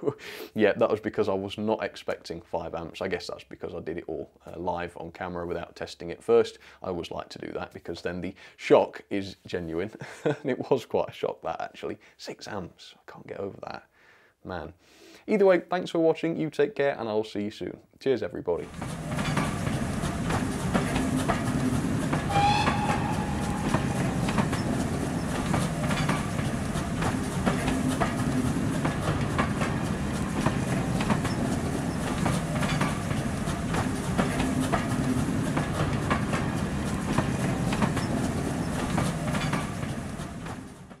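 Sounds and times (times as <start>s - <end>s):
train wheels clicking over joints: 18.7s - 41.0s
whistle-like tone: 22.3s - 24.8s.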